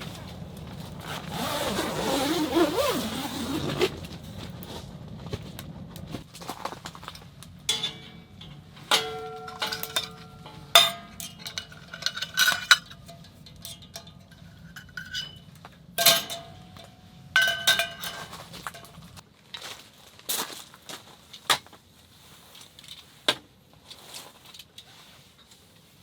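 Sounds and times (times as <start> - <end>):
metal clinks and knocks of pots: 6.9 - 19.2.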